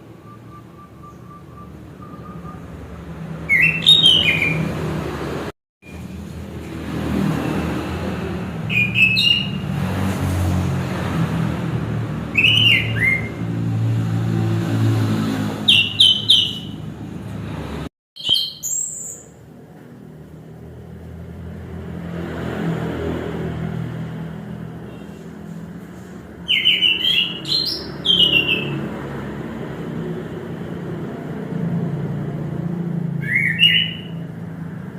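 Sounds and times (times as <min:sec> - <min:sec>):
bird chirping: 0:00.0 - 0:04.9, 0:08.6 - 0:09.7, 0:12.3 - 0:13.4, 0:15.6 - 0:16.9, 0:18.2 - 0:19.4, 0:26.4 - 0:28.8, 0:33.2 - 0:34.2.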